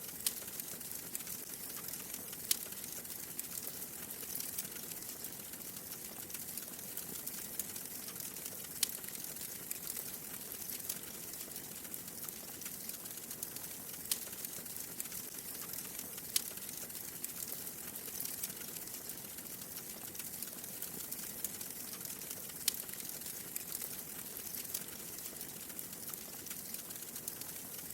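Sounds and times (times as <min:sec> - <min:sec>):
wood fire crackling: 0:00.0 - 0:27.9
fire popping: 0:00.1 - 0:27.8.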